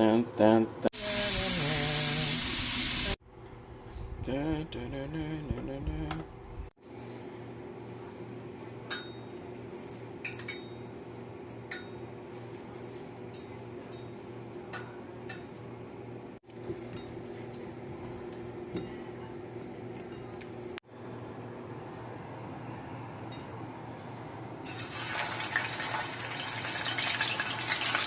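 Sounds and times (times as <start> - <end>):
utensils clinking against dishes: 8.9 - 10.9, 13.3 - 15.5.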